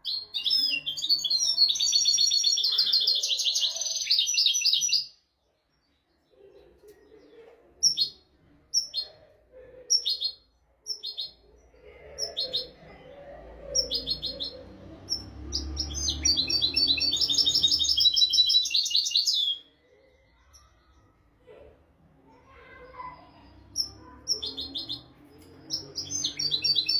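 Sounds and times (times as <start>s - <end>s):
goldfinch singing: 13.8s - 19.7s, 23.7s - 26.9s.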